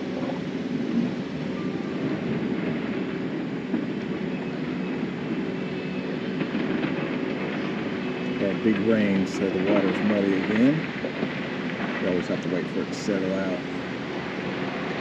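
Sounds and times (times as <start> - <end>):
engine running with dense rumble: 0.0 - 15.0.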